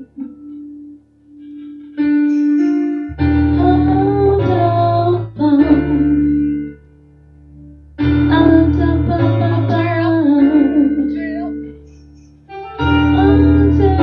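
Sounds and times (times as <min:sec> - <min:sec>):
person singing: 0:00.0 - 0:06.7, 0:08.2 - 0:11.7, 0:12.8 - 0:14.0
guitar: 0:00.0 - 0:14.0
low bass: 0:02.6 - 0:06.7.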